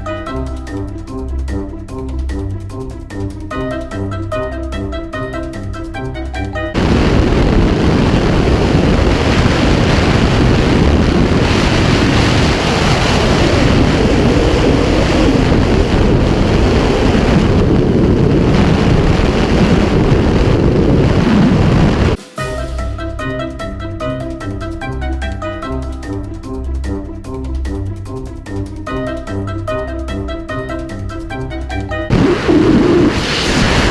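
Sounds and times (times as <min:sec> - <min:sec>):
music: 0:00.0 - 0:08.1, 0:22.2 - 0:33.9
wind buffeting microphone: 0:06.7 - 0:22.2, 0:32.1 - 0:33.9.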